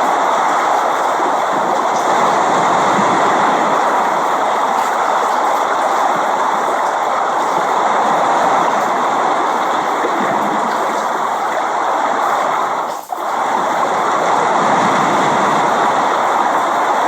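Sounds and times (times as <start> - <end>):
steady dense rain: 0.0 - 17.0.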